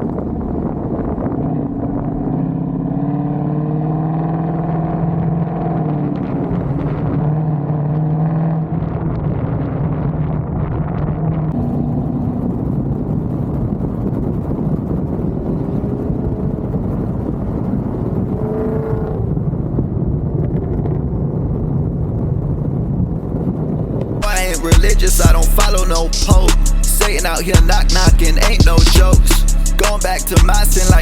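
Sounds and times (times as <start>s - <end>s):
car engine running: 11.6s - 14.4s, 24.2s - 31.0s.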